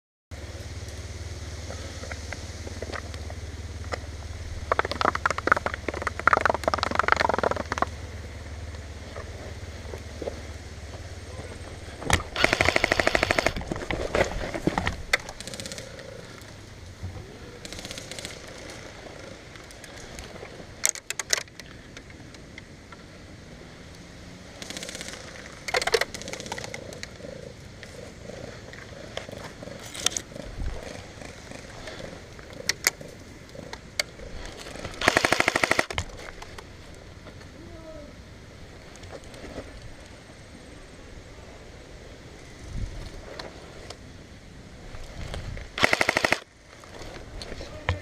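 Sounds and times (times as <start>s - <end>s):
airsoft rifle firing bursts: 12.2s - 13.6s, 17.6s - 18.8s, 24.6s - 26.5s, 35.0s - 35.9s, 45.8s - 46.5s.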